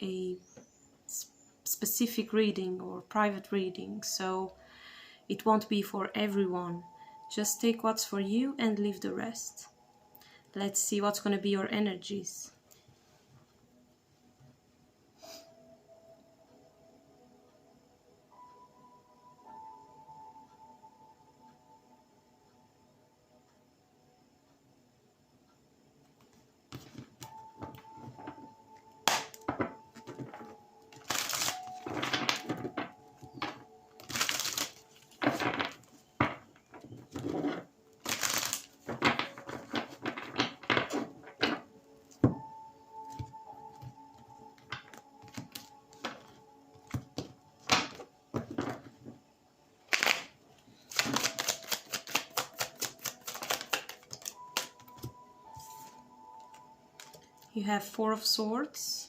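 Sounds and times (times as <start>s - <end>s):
deck of cards slapping: 29.1s - 29.7s, 31.0s - 36.4s, 37.2s - 41.6s, 49.9s - 50.3s, 50.9s - 55.1s
cards rustling: 33.4s - 35.8s, 37.2s - 41.5s, 50.9s - 54.8s
deck of cards riffled: 49.9s - 50.3s, 50.9s - 54.7s.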